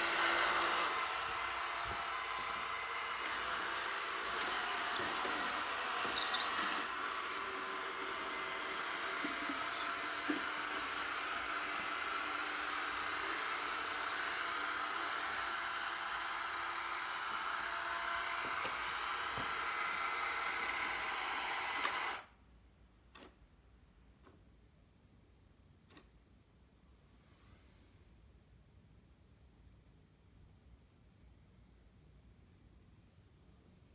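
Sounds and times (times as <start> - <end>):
robot vacuum humming: 0.0 - 22.3.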